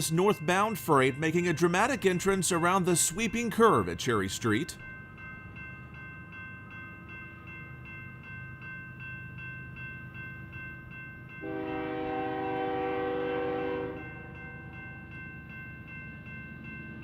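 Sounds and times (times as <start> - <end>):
crossing bell ringing: 0.0 - 17.0
locomotive air horn blast: 11.4 - 14.0.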